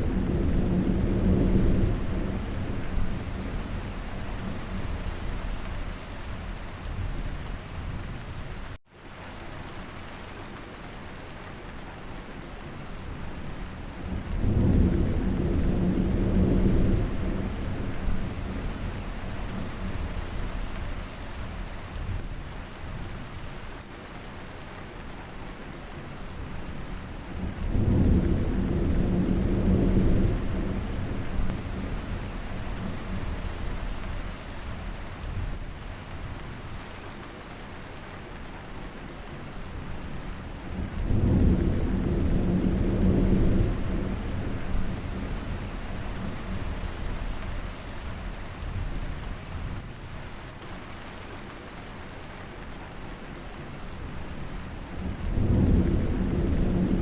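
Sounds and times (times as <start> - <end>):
steady rain: 0.0 - 57.0
deep thunder rolling: 40.8 - 47.7, 55.0 - 57.0.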